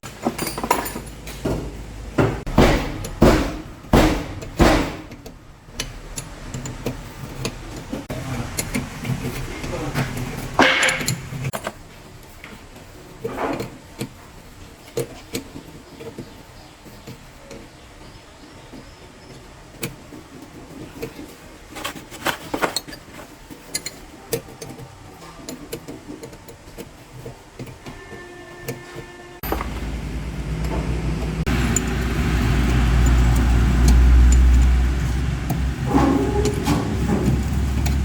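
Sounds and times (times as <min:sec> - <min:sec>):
clinks of hand tools and metal: 0:00.0 - 0:01.8, 0:04.4 - 0:11.7, 0:20.8 - 0:30.0, 0:31.5 - 0:38.0.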